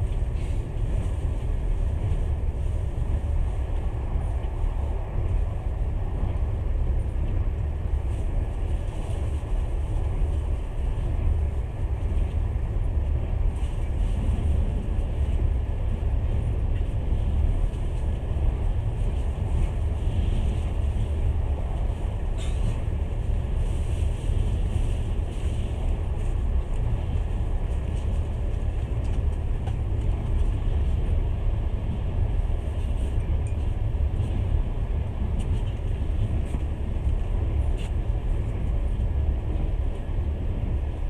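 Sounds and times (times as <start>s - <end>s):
train running low rumble: 0.0s - 41.0s.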